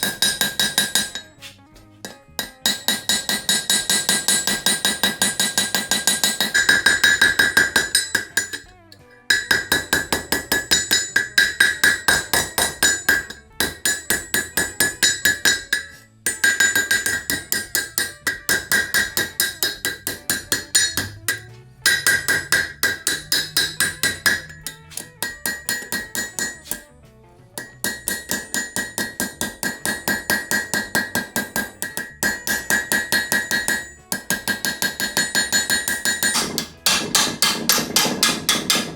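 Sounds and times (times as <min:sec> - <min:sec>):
hammer blows on anvil: 0:00.0 - 0:26.9, 0:27.5 - 0:38.9.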